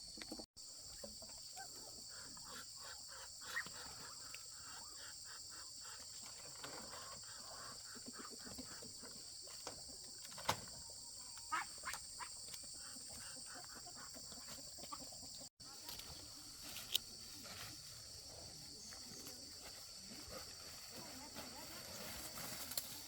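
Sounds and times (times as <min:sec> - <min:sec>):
high-pitched insect chorus: 0:15.7 - 0:23.0.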